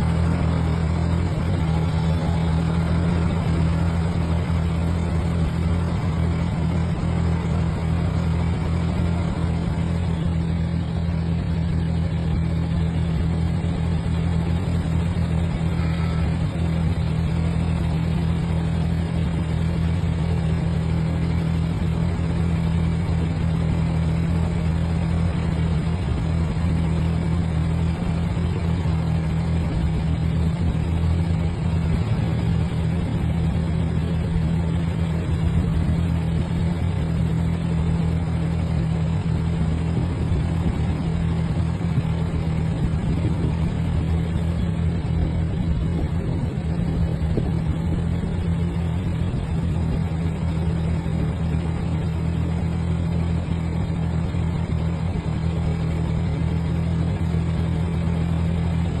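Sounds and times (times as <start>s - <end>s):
tractor engine droning: 0.0s - 59.0s.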